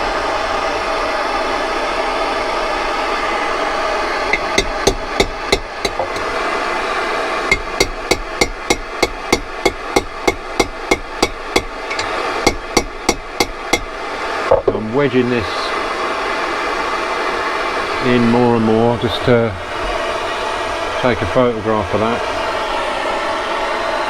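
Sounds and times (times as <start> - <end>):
steady hiss of heat source: 0.0 - 24.0
hammer tapping on metal chisel: 4.3 - 6.3, 7.5 - 13.9.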